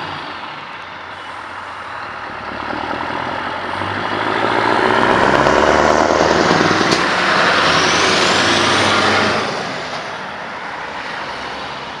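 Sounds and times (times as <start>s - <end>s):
truck engine passing: 0.0s - 12.0s.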